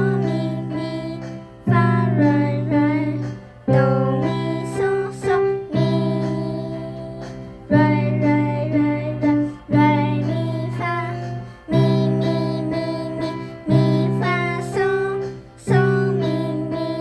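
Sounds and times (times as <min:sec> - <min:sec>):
person singing: 0:00.0 - 0:17.0.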